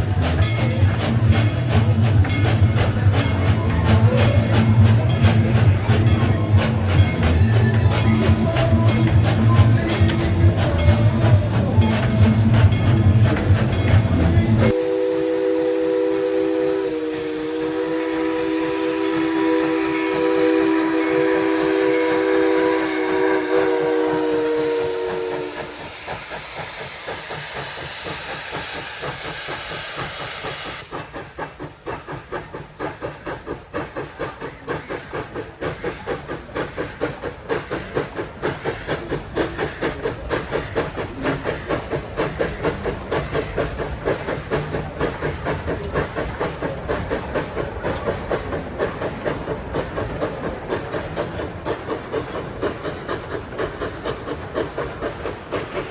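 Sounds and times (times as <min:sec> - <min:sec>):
steam locomotive chime whistle: 0:00.0 - 0:41.8
locomotive exhaust chuffs: 0:00.0 - 0:55.9
loud steam hiss: 0:00.0 - 0:55.9.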